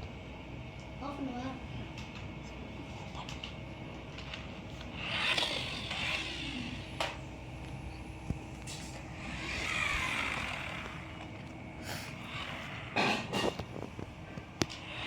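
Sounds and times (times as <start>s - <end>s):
toy car motor whirring: 4.8s - 7.2s, 8.6s - 15.0s.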